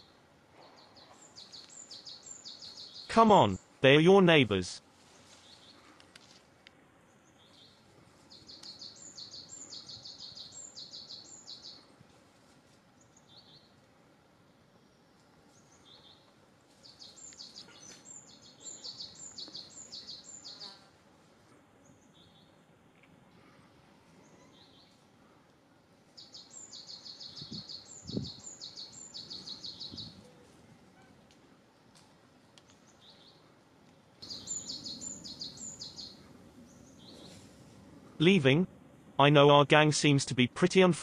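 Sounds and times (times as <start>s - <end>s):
small bird chirping: 0.0s - 3.1s, 7.1s - 11.8s, 15.6s - 20.8s, 26.2s - 30.2s, 34.2s - 37.4s
faint outdoor background: 0.0s - 41.0s.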